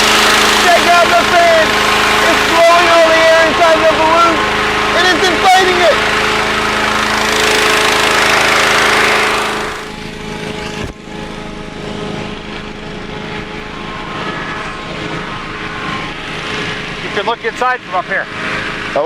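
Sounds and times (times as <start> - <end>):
inflator fan engine running: 0.0 - 19.0
loud rush of air: 6.0 - 19.0.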